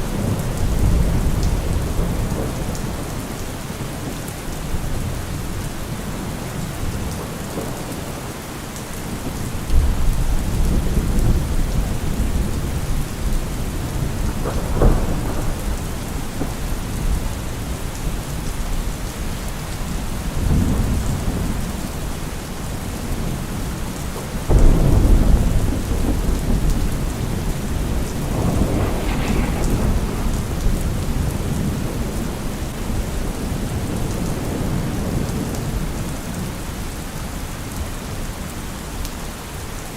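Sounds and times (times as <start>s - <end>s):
rolling thunder: 0.0s - 3.4s, 9.1s - 22.1s, 24.4s - 36.5s
heavy rain: 0.0s - 39.9s.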